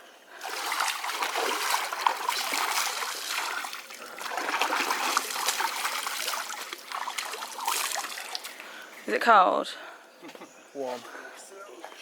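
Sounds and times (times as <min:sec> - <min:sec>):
stream water trickling and splashing: 0:00.3 - 0:09.0.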